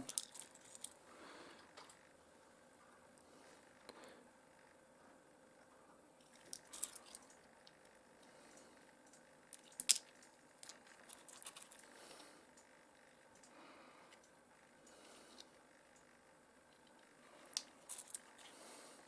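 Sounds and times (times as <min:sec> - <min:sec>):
stones clicking on a plate: 0:00.0 - 0:01.0, 0:06.2 - 0:07.8, 0:09.5 - 0:11.8, 0:16.7 - 0:18.5.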